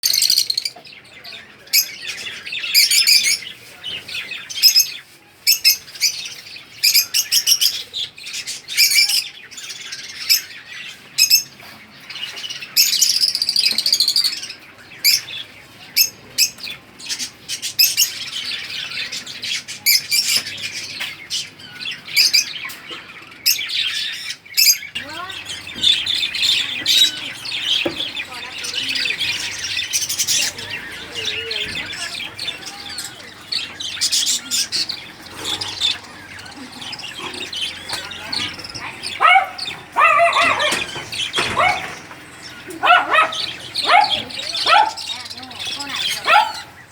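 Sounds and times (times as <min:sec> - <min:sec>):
birds chirping and squawking: 0:00.0 - 0:46.9.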